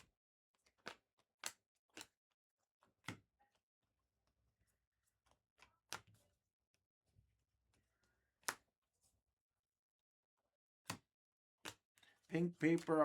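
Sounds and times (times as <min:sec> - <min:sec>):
trading cards clicking and tapping: 0:12.4 - 0:13.0.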